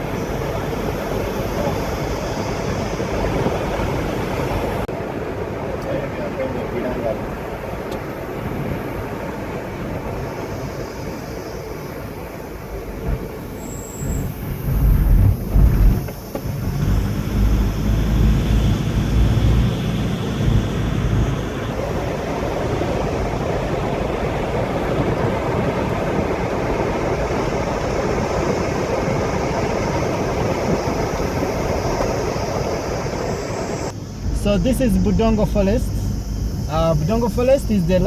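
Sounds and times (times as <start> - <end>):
steady road noise: 0.0 - 38.0
heavy low rumbling: 14.0 - 38.0.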